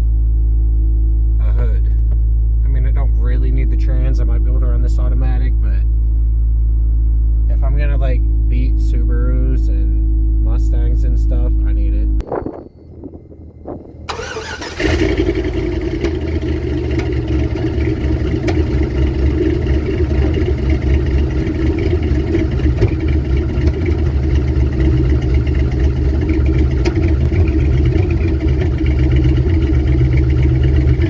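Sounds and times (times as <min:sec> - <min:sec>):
car engine starting and idling: 0:10.6 - 0:31.0.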